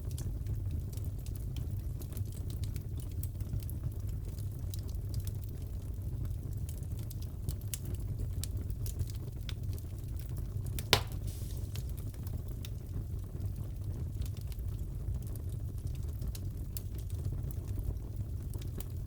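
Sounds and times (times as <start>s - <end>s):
fire crackling: 0.0s - 19.0s
fire rumbling: 0.0s - 19.0s
loud pop from fire: 10.8s - 12.2s.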